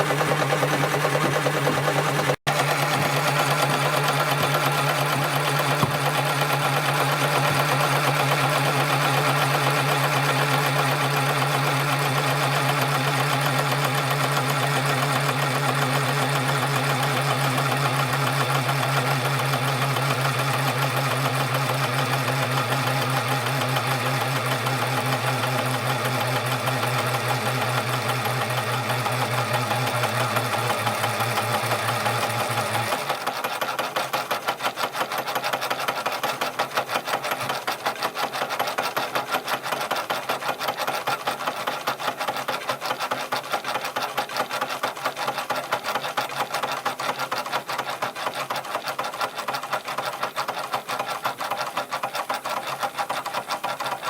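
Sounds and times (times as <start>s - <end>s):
toy steam engine clattering: 26.3s - 54.0s.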